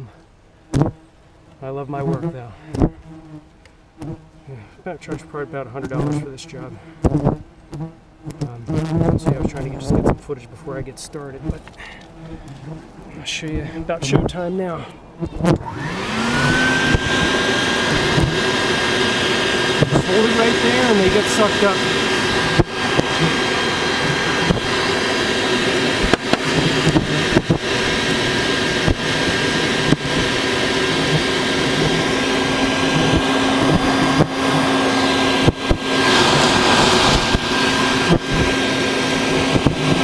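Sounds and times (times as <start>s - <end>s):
vacuum running: 10.8s - 40.0s.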